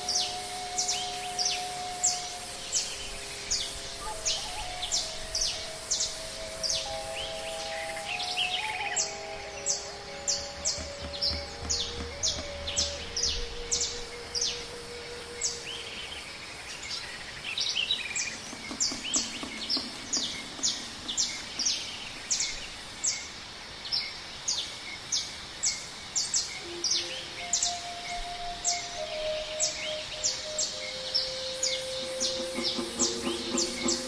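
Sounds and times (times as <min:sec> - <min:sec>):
bird chirping: 0:00.0 - 0:23.3, 0:25.7 - 0:34.0
steady background hiss: 0:00.0 - 0:34.0
soft held notes: 0:26.6 - 0:34.0.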